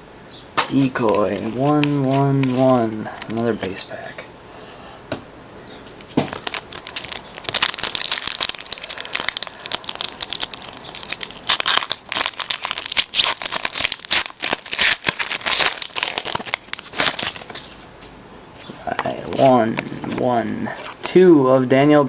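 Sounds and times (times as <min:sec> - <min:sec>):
wrapper tearing and crinkling: 0:06.1 - 0:17.8.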